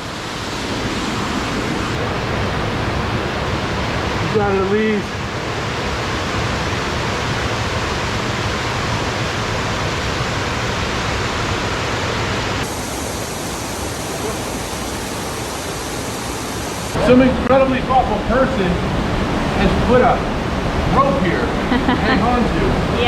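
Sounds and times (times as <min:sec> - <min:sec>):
waterfall and rapids rushing: 0:00.0 - 0:23.0.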